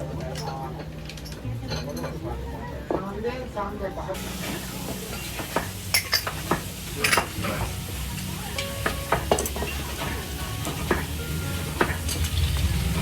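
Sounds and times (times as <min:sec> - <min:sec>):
dishes and utensils clinking: 0:00.2 - 0:03.1, 0:04.2 - 0:13.0
steady sizzling hiss: 0:04.2 - 0:13.0.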